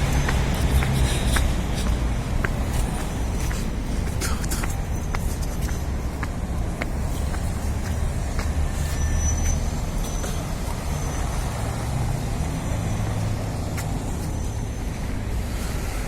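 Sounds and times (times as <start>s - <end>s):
vehicle engine rumbling: 0.0s - 16.0s
thin high squeal: 8.7s - 10.3s.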